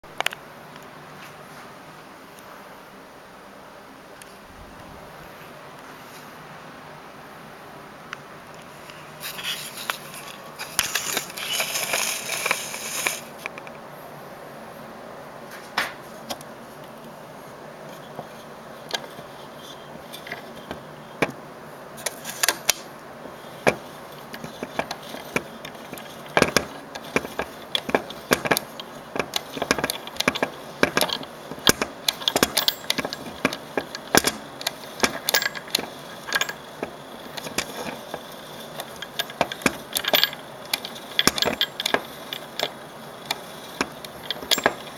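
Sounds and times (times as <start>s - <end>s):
rustle: 8.1s - 44.9s
clicks knocks and rattles: 23.6s - 44.9s.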